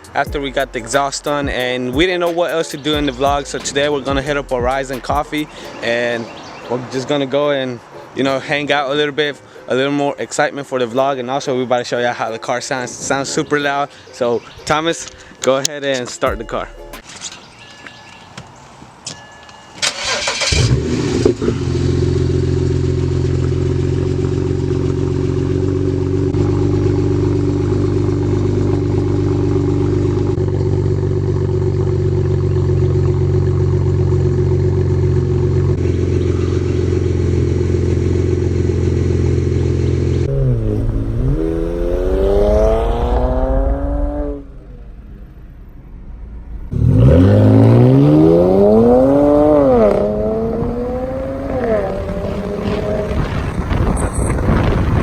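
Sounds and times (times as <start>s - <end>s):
loud car engine starting and idling: 3.0s - 5.8s, 19.8s - 55.0s
car engine revving: 3.0s - 6.4s, 19.9s - 55.0s.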